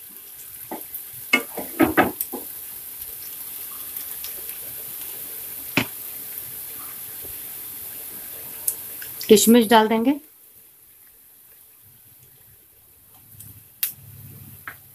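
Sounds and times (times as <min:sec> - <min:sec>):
onions sizzling in hot oil: 0:00.0 - 0:14.9
spatula clattering against pan: 0:00.7 - 0:02.5.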